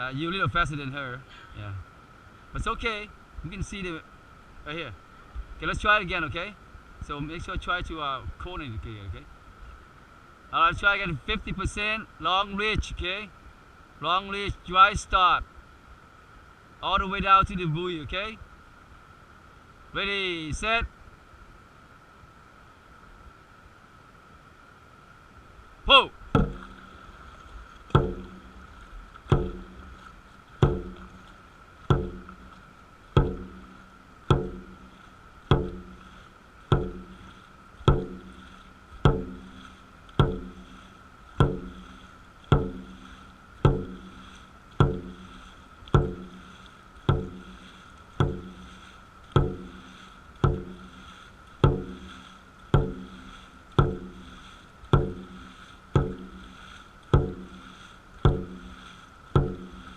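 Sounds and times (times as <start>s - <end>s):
drum beaten steadily: 26.4s - 26.9s, 28.0s - 28.7s, 29.3s - 31.3s, 31.9s - 32.6s, 33.2s - 40.8s, 41.4s - 59.9s.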